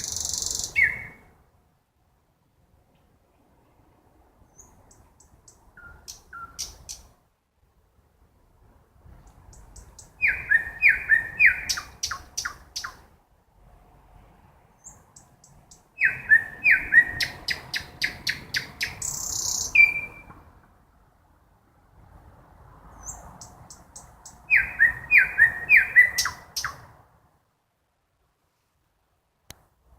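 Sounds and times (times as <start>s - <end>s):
nightingale singing: 0.0s - 1.4s, 4.4s - 7.2s, 9.2s - 13.2s, 14.7s - 20.5s, 22.9s - 27.0s.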